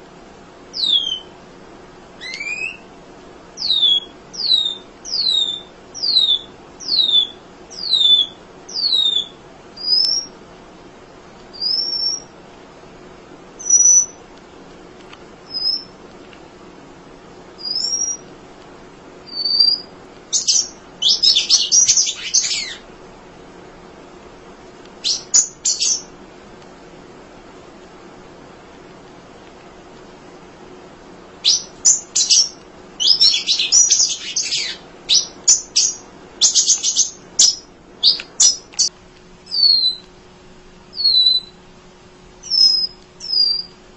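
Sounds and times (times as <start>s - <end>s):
bird high falling whistles: 0.8s - 1.3s, 2.2s - 2.8s, 3.6s - 10.3s, 11.6s - 12.3s, 17.6s - 18.2s, 19.3s - 22.8s, 31.4s - 38.6s, 39.5s - 40.0s, 40.9s - 41.6s, 42.4s - 43.7s
bird rapid chattering: 19.3s - 22.8s, 25.0s - 26.1s, 31.4s - 38.9s.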